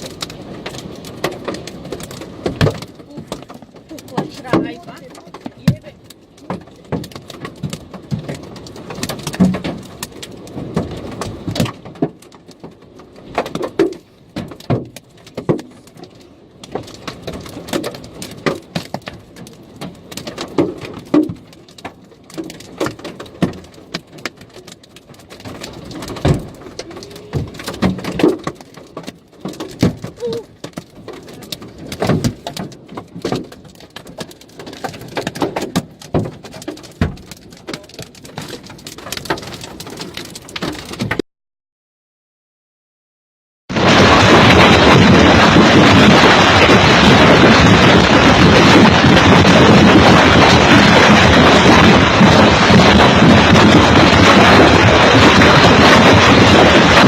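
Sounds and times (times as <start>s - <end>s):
steady rushing patter: 0.0s - 12.0s, 43.7s - 57.0s
hailstones clattering: 0.0s - 41.2s, 43.7s - 57.0s.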